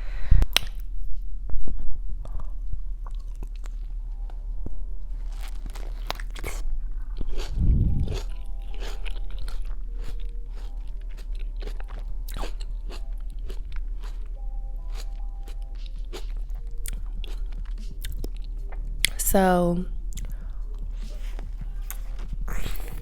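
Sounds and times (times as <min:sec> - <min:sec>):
biting into a tomato: 0:05.2 - 0:14.2
chewing with sharp clicks: 0:07.2 - 0:14.3, 0:14.9 - 0:19.2, 0:20.1 - 0:20.4.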